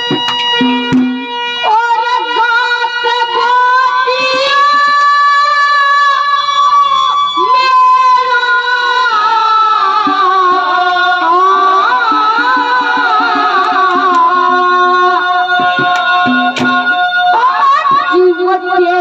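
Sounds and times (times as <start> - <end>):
hand drum beat: 0.0 - 1.2, 13.0 - 14.8, 15.6 - 17.0
harmonium melody: 0.0 - 19.0.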